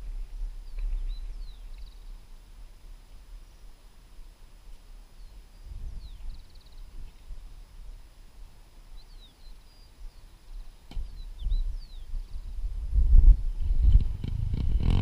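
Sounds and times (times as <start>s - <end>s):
small birds chirping: 0.0s - 13.6s.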